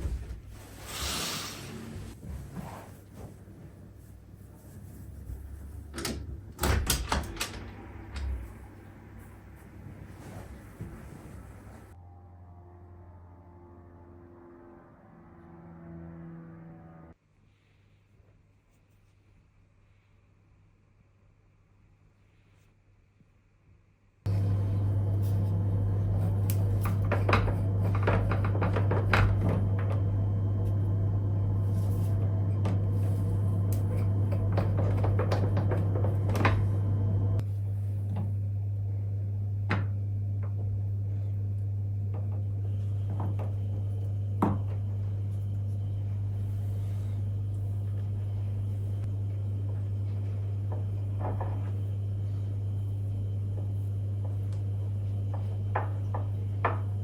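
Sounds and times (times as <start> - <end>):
steady low hum: 24.3 - 57.0.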